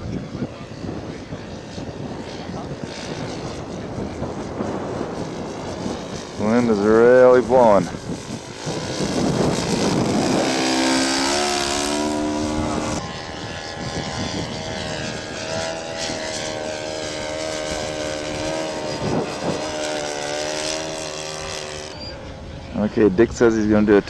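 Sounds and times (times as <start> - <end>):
model airplane engine running: 0.0 - 24.0
wind buffeting microphone: 0.0 - 24.0.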